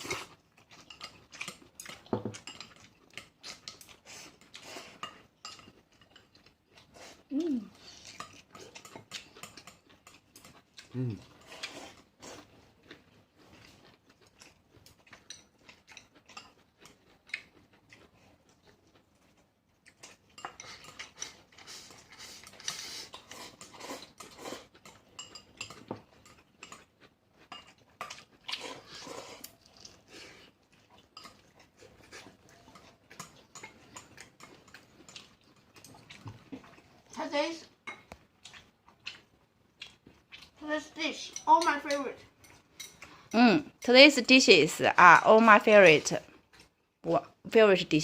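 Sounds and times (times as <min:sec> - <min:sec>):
utensils clinking on plates: 0:25.2 - 0:26.8.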